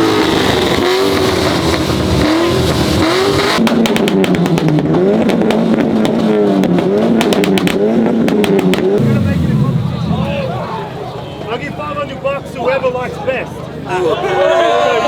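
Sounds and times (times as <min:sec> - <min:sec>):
car engine revving: 0:00.0 - 0:12.2
launch limiter popping cracks: 0:03.5 - 0:11.2.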